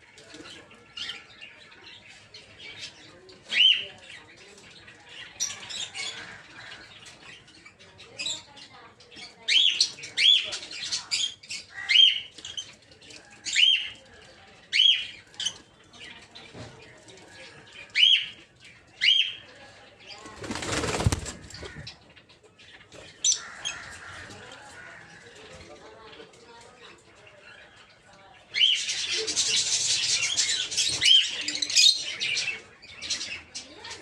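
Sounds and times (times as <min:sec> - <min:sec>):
wings flapping: 0:20.2 - 0:21.9.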